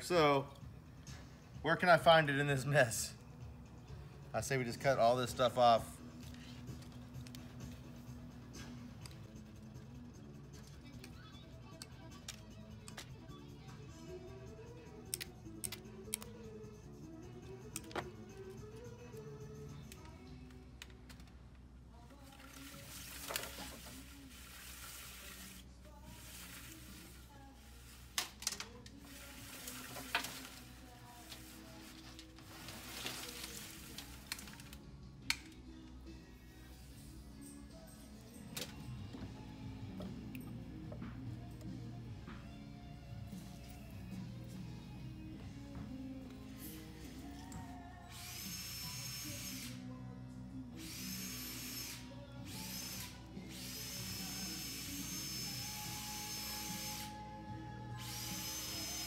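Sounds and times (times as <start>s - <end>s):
background music: 0.0s - 59.0s
power drill whining: 47.2s - 49.8s, 50.8s - 57.3s, 58.0s - 59.0s.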